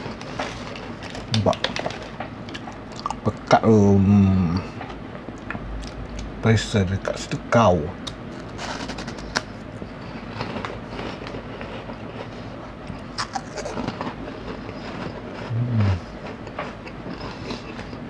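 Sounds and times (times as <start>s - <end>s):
person crunching snack: 8.4s - 18.0s
person humming: 15.5s - 16.1s.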